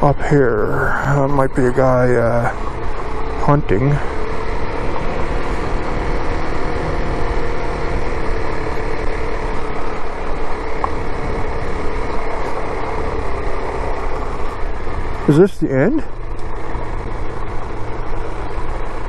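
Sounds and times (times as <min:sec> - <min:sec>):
motorcycle engine running: 0:00.0 - 0:19.0
wind rushing over microphone: 0:04.1 - 0:15.2.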